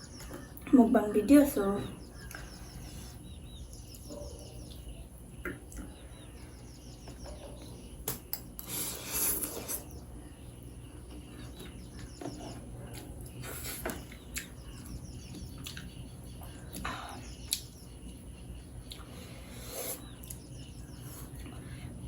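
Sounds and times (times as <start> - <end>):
person chewing: 8.0 - 10.0, 11.5 - 15.9, 18.8 - 20.4.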